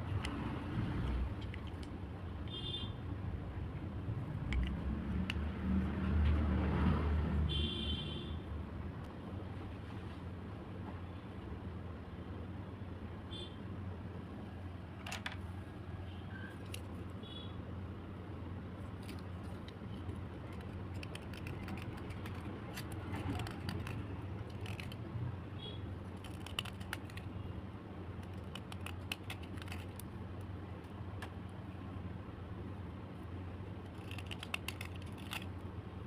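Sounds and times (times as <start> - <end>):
pencils clicking and scratching: 16.6 - 16.9, 18.8 - 25.1, 26.0 - 27.4, 28.1 - 30.5, 33.8 - 35.6.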